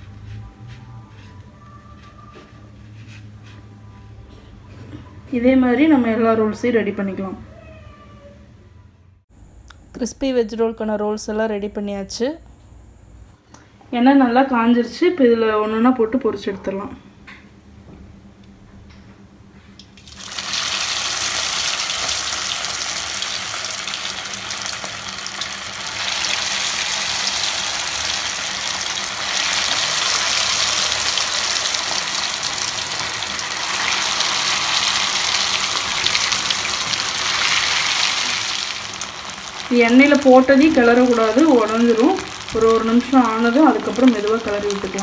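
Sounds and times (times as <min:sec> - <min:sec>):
food deep-frying in hot oil: 0:19.9 - 0:45.0.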